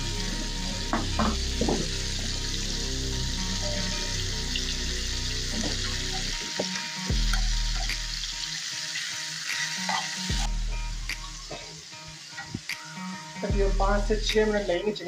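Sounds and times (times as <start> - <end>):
chicken sizzling in a pan: 0.0 - 15.0
oil popping: 0.9 - 2.4, 3.7 - 8.5.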